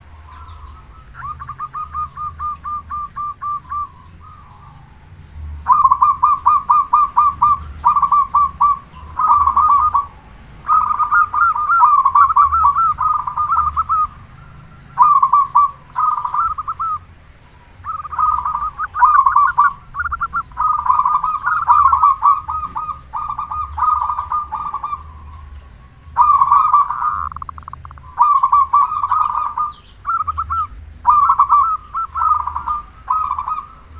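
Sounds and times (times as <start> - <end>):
dove cooing in rolling notes: 0.0 - 33.9.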